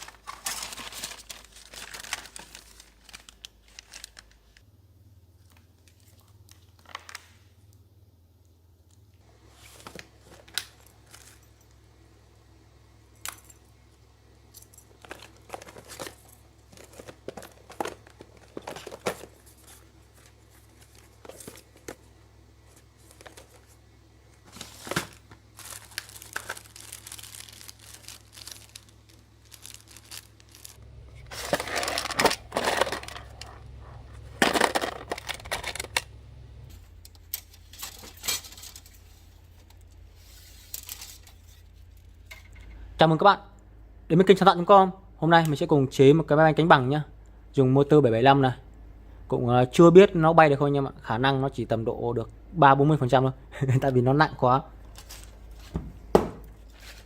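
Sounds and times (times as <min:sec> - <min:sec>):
crinkling and rustling: 0:00.0 - 0:04.7, 0:05.3 - 0:07.5, 0:08.9 - 0:11.8, 0:14.4 - 0:42.7, 0:54.8 - 0:57.0.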